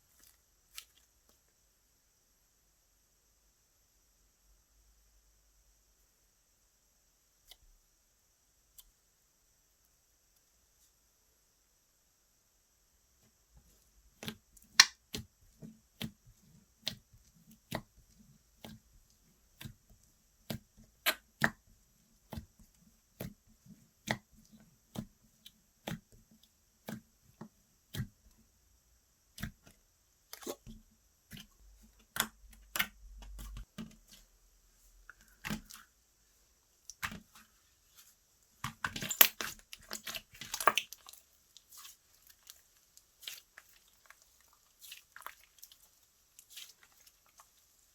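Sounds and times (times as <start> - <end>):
sticky clicks of slime: 14.2 - 15.3.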